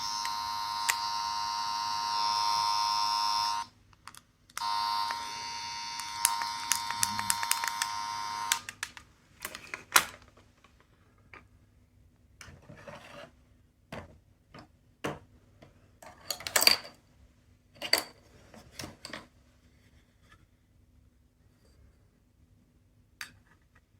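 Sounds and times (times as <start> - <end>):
plastic toys clicking and knocking: 6.0 - 7.9.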